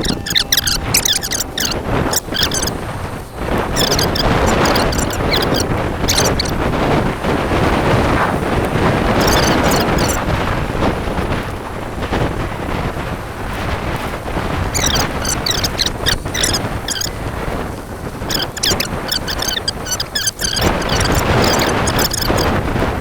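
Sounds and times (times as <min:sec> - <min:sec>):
short high-pitched chirps: 0:00.0 - 0:02.7, 0:03.8 - 0:06.5, 0:14.8 - 0:17.1, 0:18.3 - 0:22.5
wind buffeting microphone: 0:00.0 - 0:23.0.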